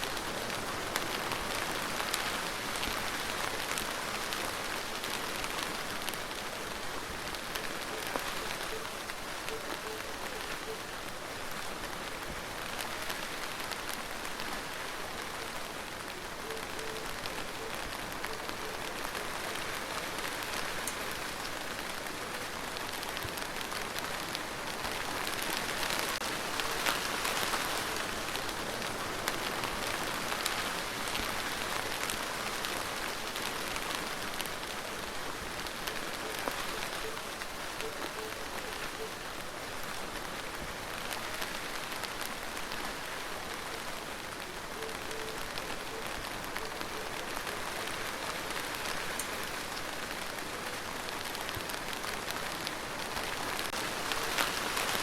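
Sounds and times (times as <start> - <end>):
steady rain hiss: 0.0 - 55.0
raindrop ticks: 16.4 - 39.2.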